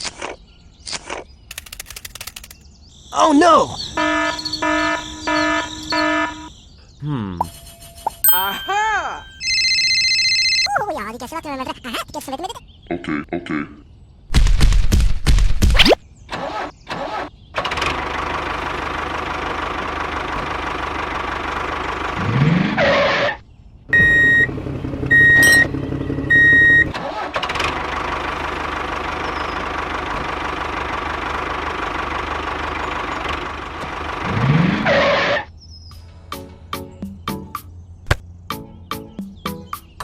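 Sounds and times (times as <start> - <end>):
tractor engine running: 3.8 - 6.5, 17.6 - 22.8, 24.0 - 35.2
short high horn beeps: 4.0 - 6.5, 25.3 - 25.7.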